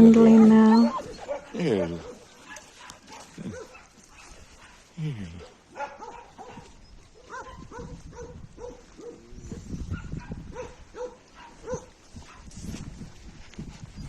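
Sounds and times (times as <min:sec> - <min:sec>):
dogs yipping and whining: 0:00.2 - 0:03.9, 0:05.8 - 0:12.0.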